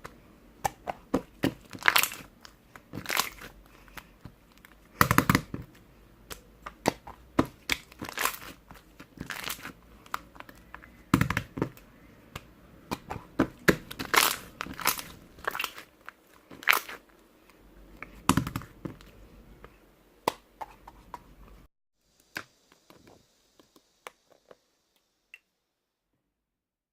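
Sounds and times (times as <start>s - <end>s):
slime being squished by hand: 0.6s - 17.1s.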